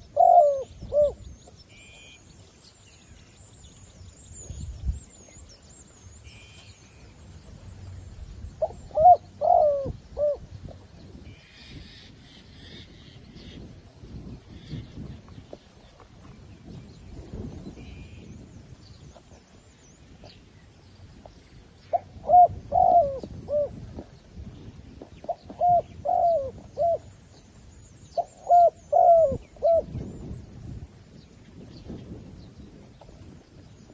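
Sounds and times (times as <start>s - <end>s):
dove cooing: 0.0s - 1.2s, 8.6s - 10.5s, 21.9s - 24.1s, 25.2s - 27.1s, 28.2s - 30.0s.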